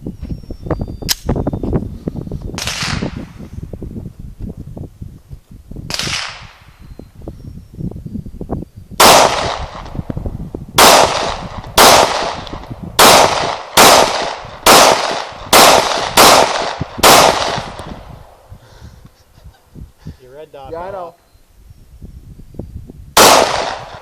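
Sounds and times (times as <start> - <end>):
pistol shots echoing: 9.0 - 9.9, 10.8 - 18.0, 23.2 - 24.0.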